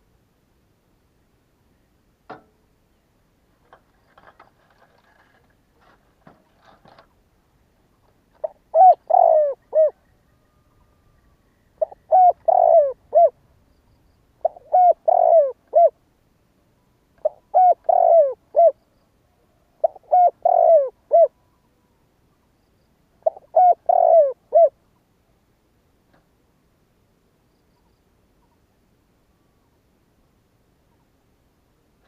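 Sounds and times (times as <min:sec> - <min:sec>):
dove cooing: 0:08.3 - 0:13.4, 0:14.4 - 0:16.0, 0:17.2 - 0:18.8, 0:19.4 - 0:21.9, 0:23.2 - 0:24.8.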